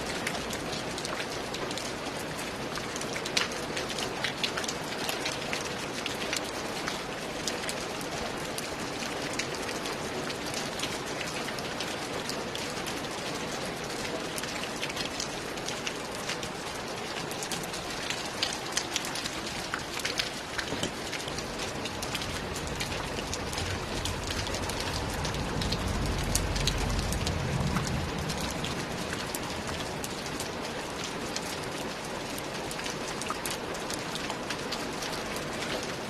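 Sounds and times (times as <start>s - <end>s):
rain on a roof: 0.0s - 36.0s.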